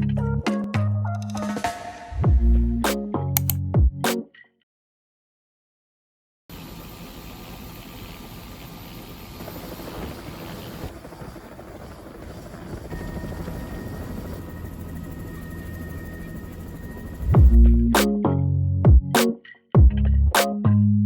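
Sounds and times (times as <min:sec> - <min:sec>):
helicopter rotor and engine: 0:06.5 - 0:17.6.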